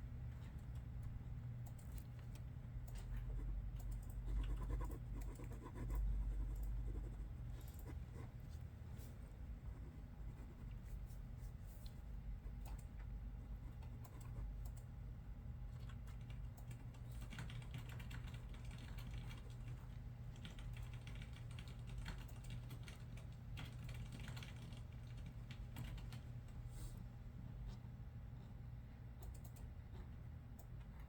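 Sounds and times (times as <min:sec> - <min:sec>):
steady low hum: 0:00.0 - 0:31.0
computer keyboard typing: 0:01.6 - 0:08.0, 0:13.8 - 0:14.9, 0:15.8 - 0:26.2.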